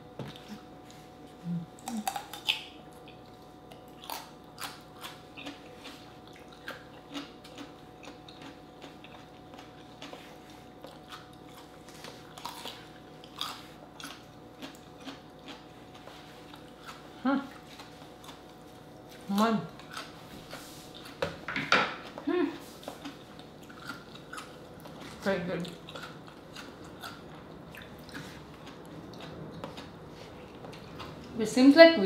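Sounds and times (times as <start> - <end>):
crunching radish bites: 1.8 - 3.2.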